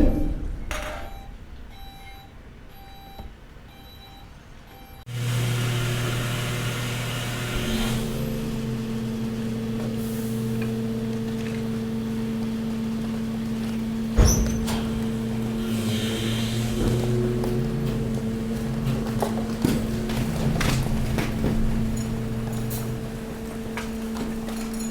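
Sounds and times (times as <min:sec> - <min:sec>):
beeping alarm: 0:00.0 - 0:05.1
hydraulic compactor humming: 0:05.1 - 0:24.9.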